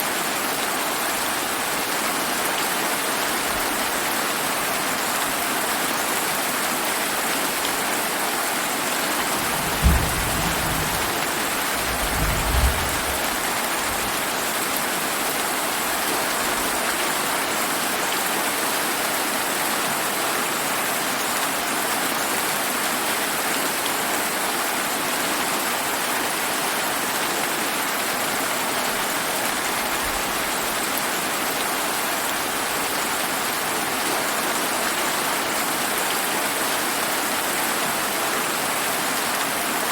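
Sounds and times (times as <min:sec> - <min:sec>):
heavy rain falling: 0:00.1 - 0:39.9
rumble of thunder: 0:09.2 - 0:14.3
thunder boom: 0:09.3 - 0:14.1.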